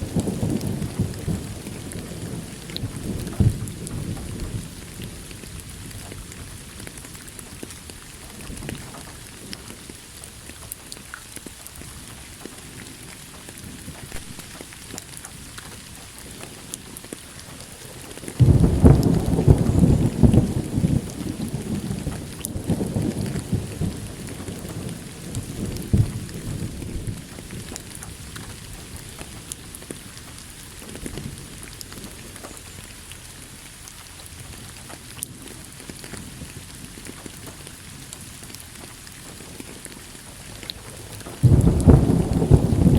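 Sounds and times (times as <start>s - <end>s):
thunderclap rumbling: 0.0s - 7.7s, 17.4s - 32.4s, 35.9s - 42.9s
rain falling: 0.0s - 42.9s.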